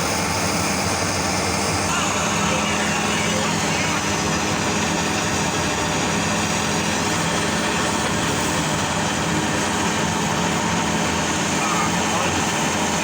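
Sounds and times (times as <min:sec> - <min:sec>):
heavy diesel engine humming: 0:00.0 - 0:13.0.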